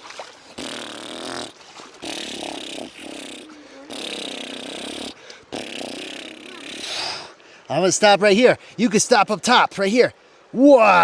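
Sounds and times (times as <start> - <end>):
person making growling mouth noises: 0.6 - 7.2.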